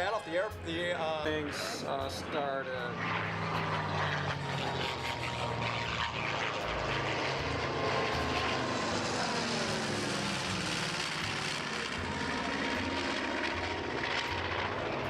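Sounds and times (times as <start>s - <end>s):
propeller airplane flying overhead: 0.0s - 15.0s.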